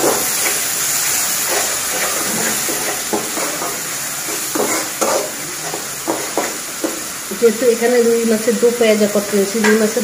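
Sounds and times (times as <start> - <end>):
onion sizzling in hot oil: 0.0 - 10.0
spatula scraping and knocking pan: 1.4 - 7.1.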